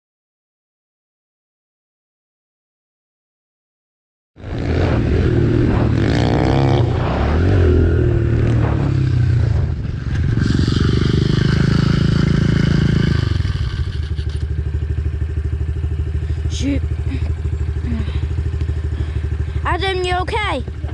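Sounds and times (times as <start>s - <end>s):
small motorbike engine revving: 4.4s - 19.6s.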